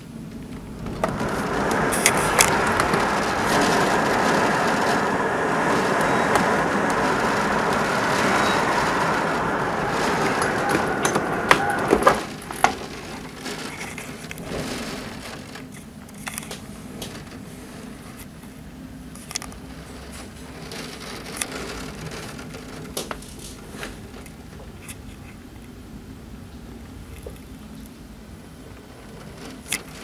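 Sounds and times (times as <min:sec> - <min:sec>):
low hum: 0:00.0 - 0:15.7
raindrops tapping on window: 0:00.1 - 0:30.0.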